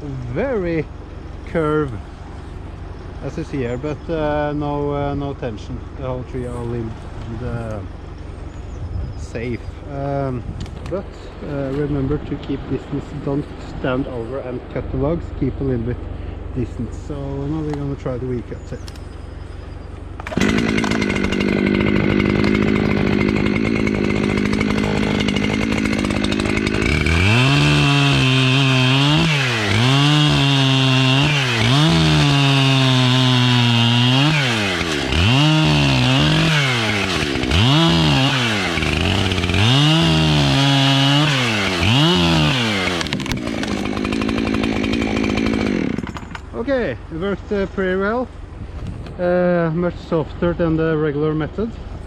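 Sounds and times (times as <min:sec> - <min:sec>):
chainsaw cutting wood: 0:20.0 - 0:46.6.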